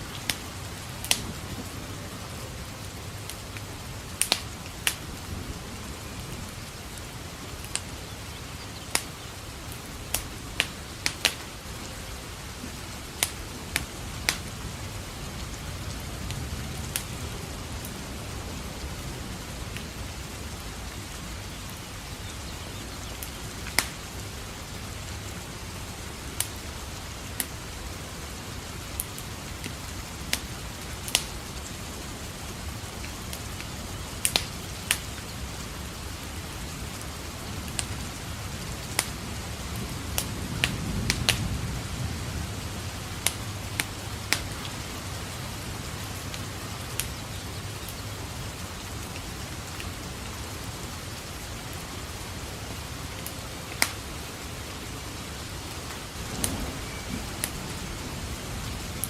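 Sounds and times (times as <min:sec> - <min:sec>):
distant thunder rumble: 0:00.0 - 0:22.2, 0:28.4 - 0:47.0, 0:55.9 - 0:59.0
steady rain: 0:00.0 - 0:59.0
wood fire crackling: 0:00.0 - 0:59.0.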